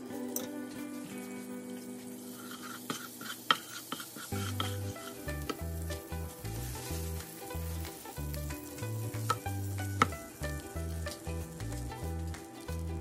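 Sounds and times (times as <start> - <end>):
eggs sizzling in a pan: 0.0 - 13.0
utensil tapping a pan: 2.6 - 13.0
background music with bass line: 4.4 - 13.0.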